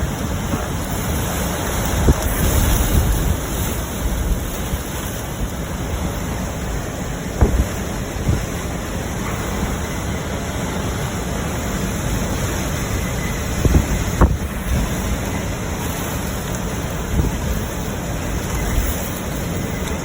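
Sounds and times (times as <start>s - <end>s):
strong wind buffeting microphone: 0.0s - 20.0s
sharp knocks: 7.4s - 7.7s.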